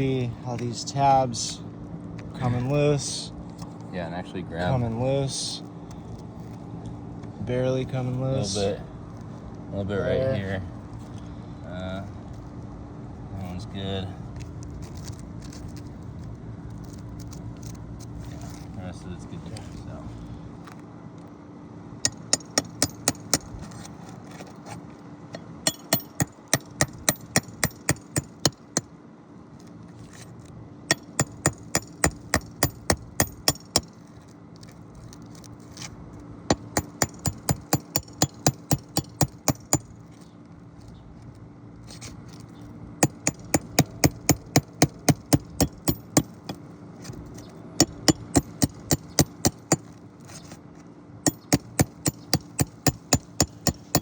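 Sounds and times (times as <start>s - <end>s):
hammer striking metal: 22.1s - 23.5s, 25.6s - 28.9s, 30.9s - 33.9s, 36.5s - 39.9s, 43.0s - 46.6s, 47.8s - 49.8s, 51.3s - 54.0s.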